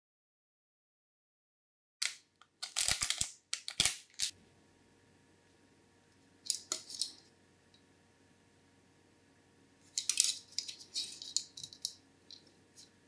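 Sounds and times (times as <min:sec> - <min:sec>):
packaging rustling and clicking: 0:02.0 - 0:04.3.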